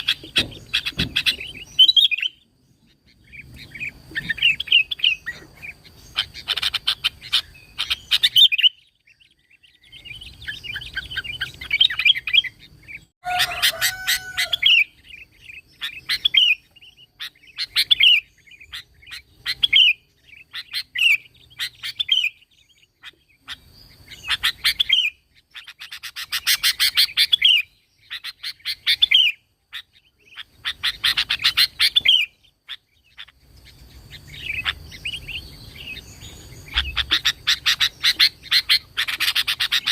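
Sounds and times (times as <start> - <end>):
bird chattering chirps: 0.0 - 39.9.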